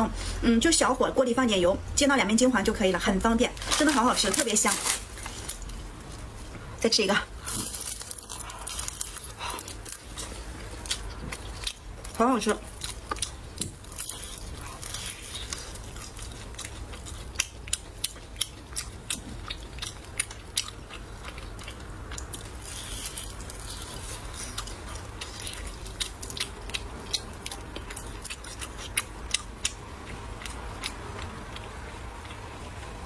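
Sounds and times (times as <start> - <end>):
crunchy pastry being chewed: 7.4 - 33.0.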